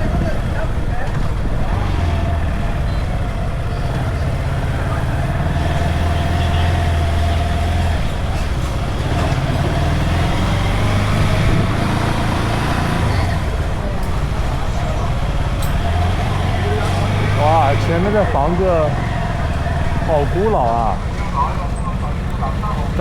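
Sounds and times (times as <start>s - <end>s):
motorcycle engine running: 0.0s - 23.0s
road and wind noise: 0.0s - 23.0s.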